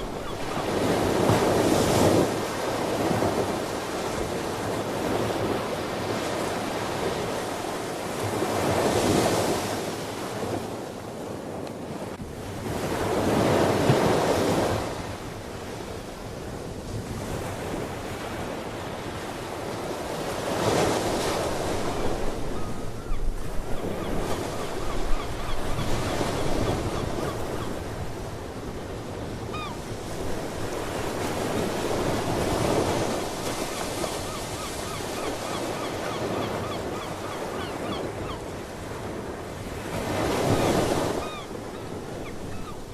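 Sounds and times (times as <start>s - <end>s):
faint sea bird calls: 0.0s - 1.0s, 22.0s - 27.8s, 29.4s - 29.8s, 33.6s - 38.6s, 40.7s - 42.9s
ocean waves breaking on shore: 0.0s - 42.9s.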